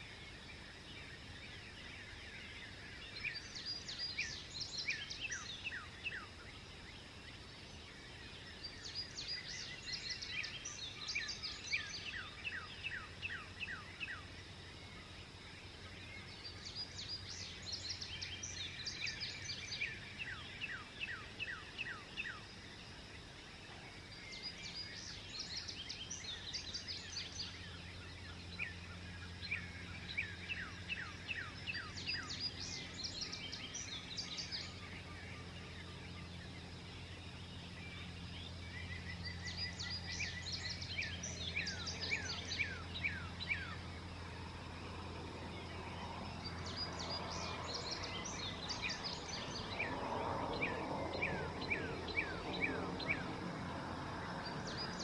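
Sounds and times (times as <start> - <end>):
birds chirping: 0.0 - 55.0
steady low hum: 25.8 - 55.0.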